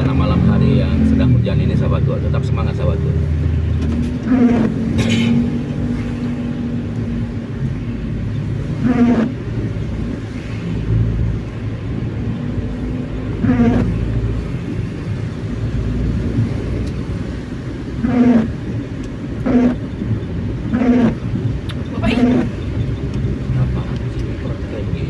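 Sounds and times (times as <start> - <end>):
car engine and road rumble: 0.0 - 25.0
wiper blades squeaking on glass: 0.0 - 25.0
person speaking: 21.8 - 22.5.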